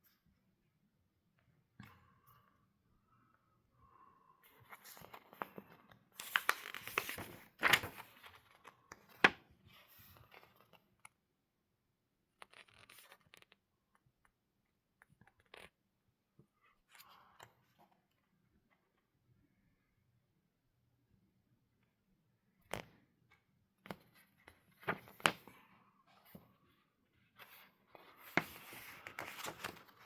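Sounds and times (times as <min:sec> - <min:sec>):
paper rustling and crinkling: 0:04.6 - 0:10.8, 0:24.8 - 0:25.5, 0:27.4 - 0:30.0.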